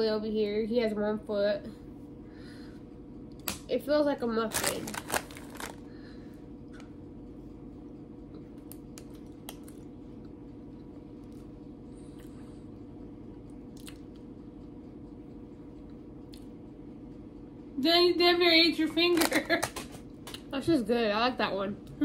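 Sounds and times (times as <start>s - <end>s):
low hum: 0.0s - 22.0s
chewing soft food: 8.4s - 12.8s, 13.4s - 14.3s.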